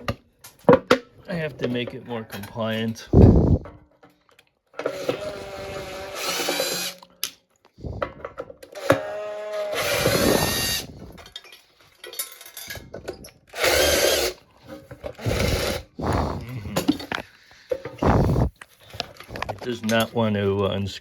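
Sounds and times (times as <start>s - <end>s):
power drill whining: 4.8s - 7.0s, 8.6s - 11.3s, 13.5s - 14.5s, 15.1s - 16.4s.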